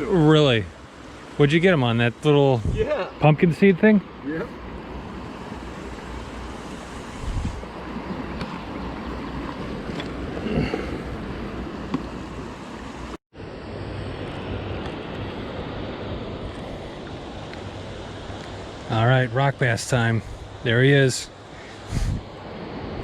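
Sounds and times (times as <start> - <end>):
wind on microphone: 2.5 - 2.9, 6.5 - 7.8, 21.8 - 22.3
river water rushing: 4.0 - 13.2.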